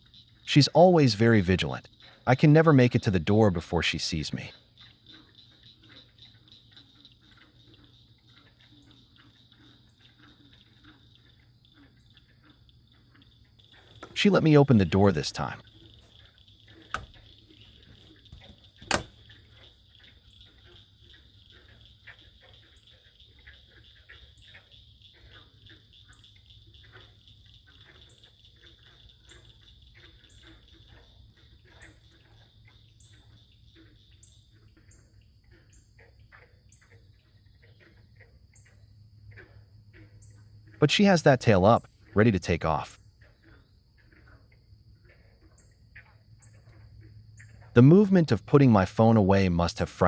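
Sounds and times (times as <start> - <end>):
high insect hum: 0.0 - 50.0
water drips: 0.0 - 50.0
soft ticks: 4.5 - 14.8.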